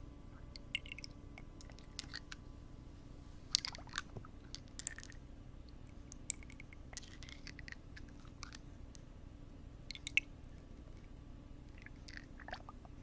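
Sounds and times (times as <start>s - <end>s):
soft crackly clicks and scratches: 5.9s - 9.0s.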